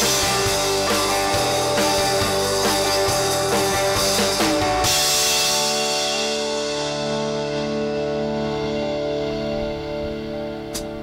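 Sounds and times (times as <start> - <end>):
steady drum beat: 0.0 - 7.8
electric guitars holding chords: 0.0 - 11.0.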